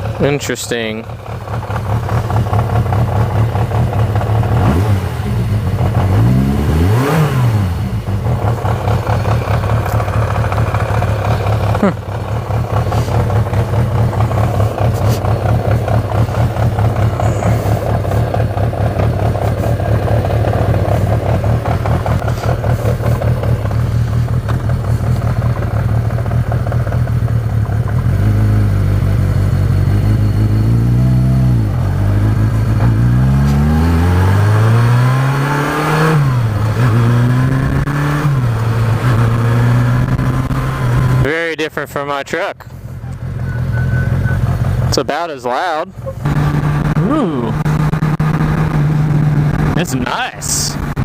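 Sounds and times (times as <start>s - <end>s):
motorcycle engine idling: 0.0s - 6.6s, 7.6s - 30.6s, 42.6s - 45.0s
motorcycle accelerating through gears: 0.0s - 41.4s, 45.9s - 50.0s.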